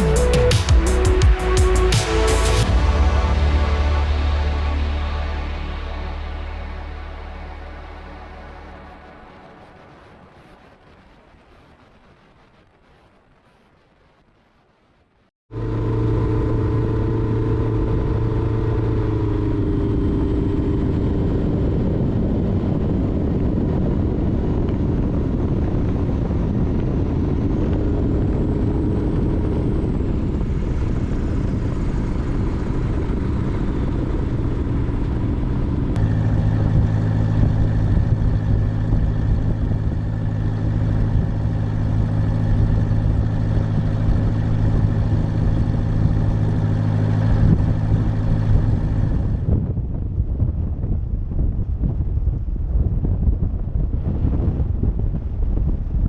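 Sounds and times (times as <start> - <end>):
light aircraft engine and propeller: 15.5 - 50.8.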